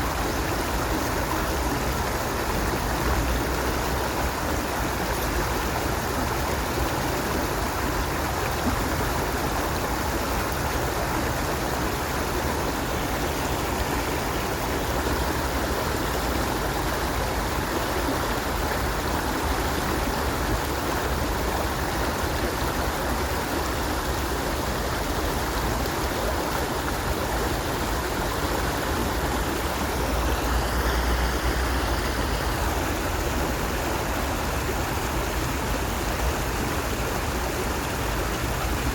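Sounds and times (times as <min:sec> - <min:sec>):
stream water flowing and splashing: 0:00.0 - 0:38.9.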